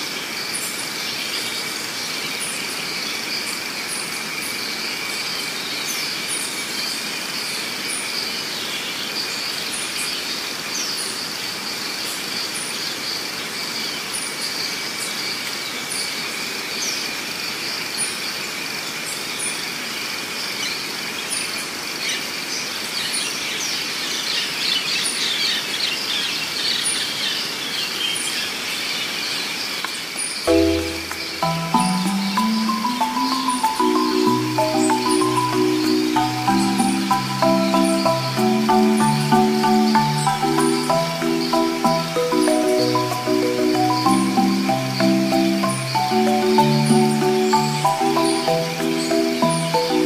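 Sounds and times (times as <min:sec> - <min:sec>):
small birds chirping: 0:00.0 - 0:50.0
high insect drone: 0:30.5 - 0:50.0.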